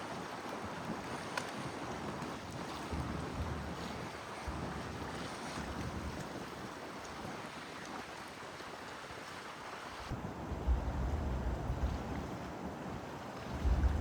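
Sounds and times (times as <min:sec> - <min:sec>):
wind buffeting microphone: 0:10.1 - 0:14.0
steady rushing noise: 0:13.5 - 0:14.0.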